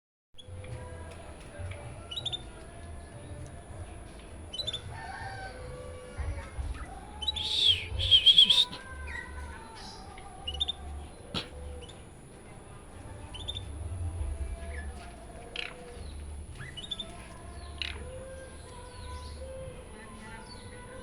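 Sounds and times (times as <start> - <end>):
songbird chirping: 6.6 - 12.0, 14.7 - 19.6
bird warbling song: 6.8 - 12.0, 14.9 - 18.4.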